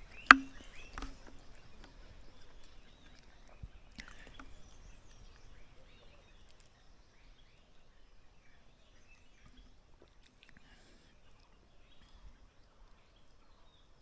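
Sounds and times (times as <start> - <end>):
bird chirps: 0.0 - 9.9
sharp clicks: 0.1 - 1.4.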